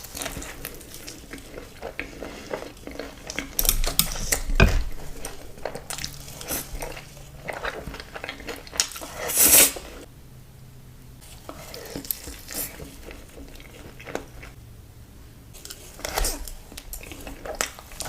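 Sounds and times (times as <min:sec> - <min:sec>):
chewing: 0:00.0 - 0:10.1, 0:11.2 - 0:14.6, 0:15.6 - 0:18.0
crunching fried chicken: 0:00.0 - 0:10.1, 0:11.2 - 0:14.6.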